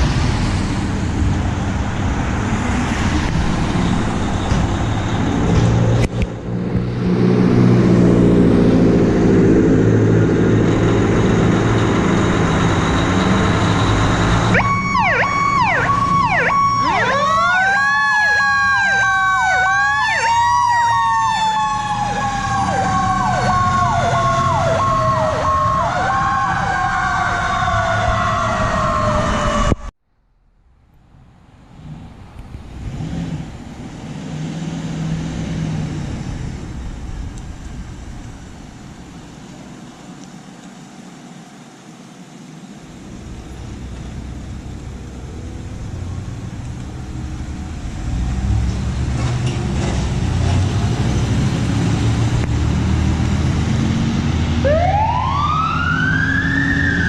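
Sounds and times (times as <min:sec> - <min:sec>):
diesel engine pulling hard: 0:00.0 - 0:29.8, 0:31.6 - 0:41.8, 0:42.5 - 0:57.0
electronic siren yelping: 0:14.4 - 0:29.9, 0:54.6 - 0:57.0.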